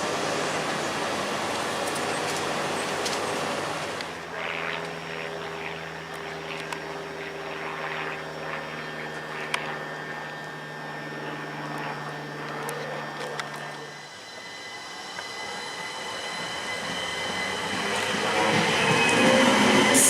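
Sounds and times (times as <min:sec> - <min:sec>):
train hum: 0:00.0 - 0:20.0
train rushing: 0:13.7 - 0:20.0.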